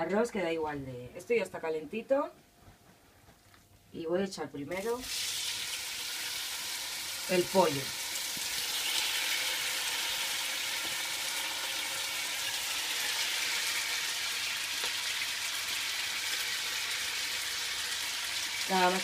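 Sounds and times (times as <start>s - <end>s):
chicken sizzling in oil: 4.8s - 19.0s.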